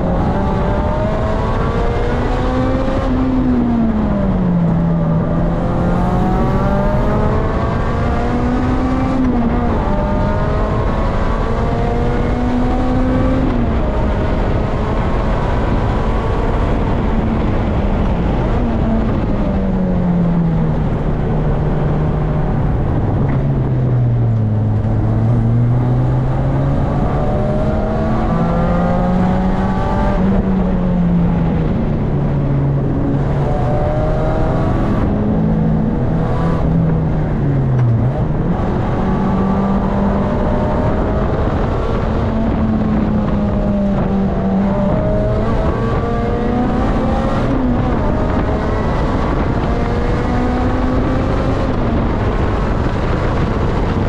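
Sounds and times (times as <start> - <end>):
car engine revving in cabin: 0.0 - 54.0
road and wind noise: 0.0 - 54.0.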